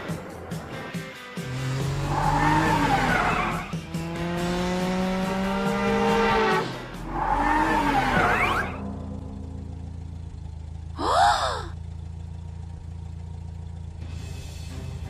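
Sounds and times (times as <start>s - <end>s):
background music: 0.0s - 10.3s, 13.9s - 15.0s
pitched engine-like tone: 7.0s - 15.0s.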